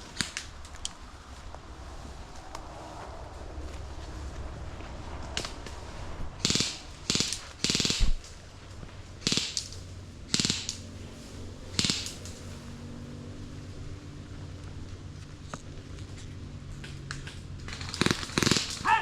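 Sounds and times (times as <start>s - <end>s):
airsoft gun rapid fire: 0.0s - 0.8s, 6.4s - 8.3s, 9.2s - 10.9s, 11.7s - 12.5s, 17.7s - 19.0s.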